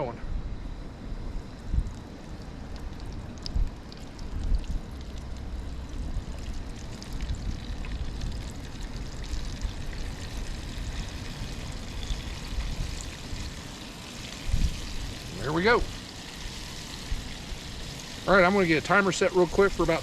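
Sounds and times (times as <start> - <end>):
food sizzling in oil: 5.5 - 20.0.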